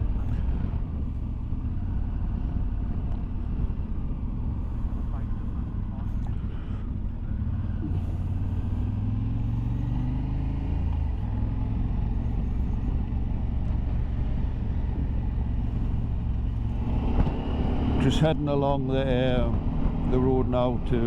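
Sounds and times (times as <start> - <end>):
motorcycle engine running: 0.0 - 21.0
road and wind noise: 0.0 - 21.0.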